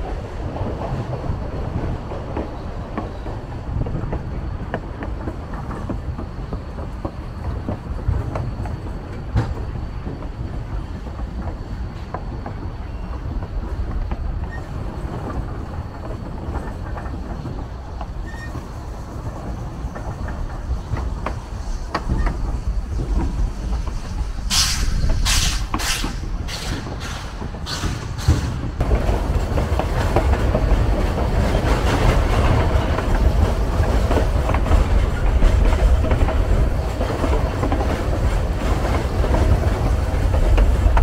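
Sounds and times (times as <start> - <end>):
train wheels on rail: 0.0 - 41.0
sharp hissing bursts: 22.7 - 28.8.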